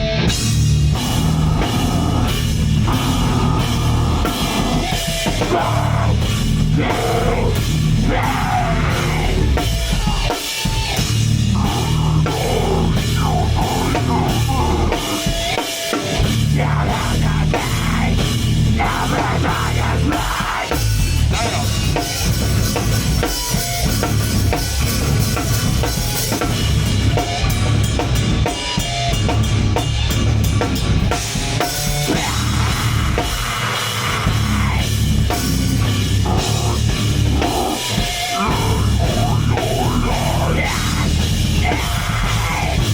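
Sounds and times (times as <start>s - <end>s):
band playing loud live music: 0.0s - 42.9s
pounding drum kit: 0.0s - 42.9s.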